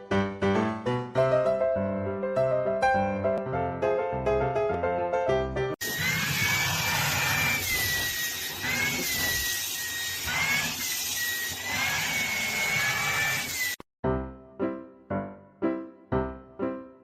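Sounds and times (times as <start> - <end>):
motor-driven appliance whining: 5.8 - 13.8.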